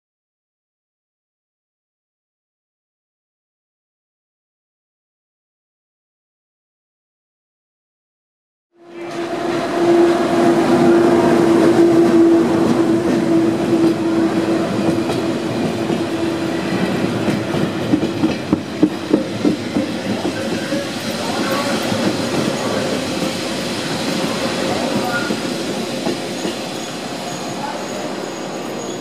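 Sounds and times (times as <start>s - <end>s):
electric locomotive whine: 8.8s - 29.0s
train wheel clatter over rail joints: 9.0s - 29.0s.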